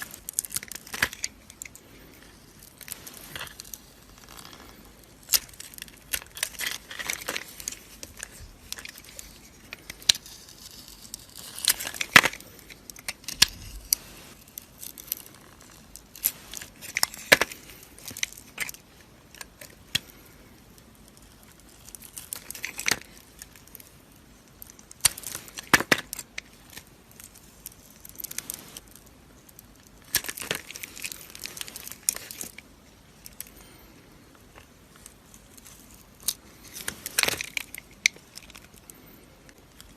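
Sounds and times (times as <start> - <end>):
knife scraping dry soap: 10.2 - 12.0.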